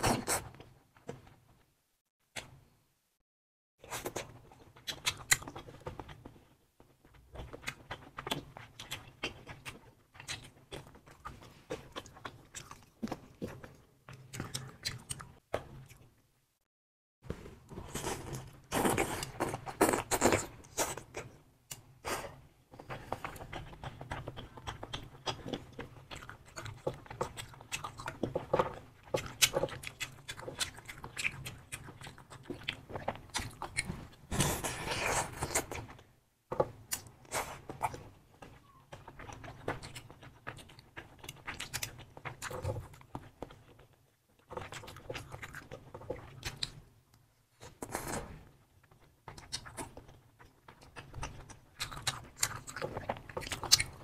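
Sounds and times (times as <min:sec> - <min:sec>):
chewing and biting food: 0:04.0 - 0:16.1, 0:22.8 - 0:36.0, 0:36.9 - 0:46.8, 0:47.7 - 0:54.0.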